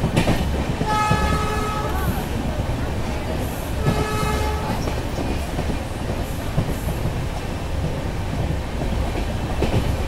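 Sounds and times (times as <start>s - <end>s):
rail joint clacks: 0.0s - 10.0s
train wheels rumbling on rail: 0.0s - 10.0s.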